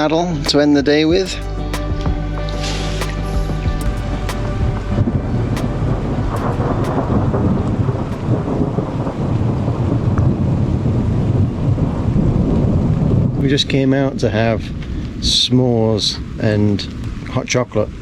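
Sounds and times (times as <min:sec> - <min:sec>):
rain falling: 0:00.0 - 0:18.0
thunder rumbling: 0:01.1 - 0:15.4.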